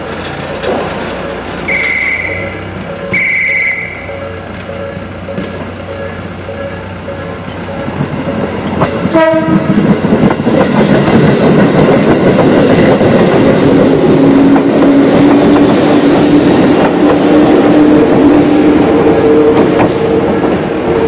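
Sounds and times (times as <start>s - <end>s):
commuter train running past: 0.0s - 21.0s
train horn blast: 1.7s - 6.8s, 9.1s - 9.8s.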